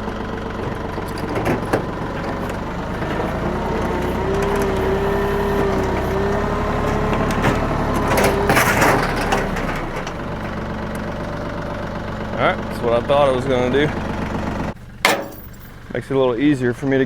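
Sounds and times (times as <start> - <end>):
tractor engine running under load: 0.0 - 17.0.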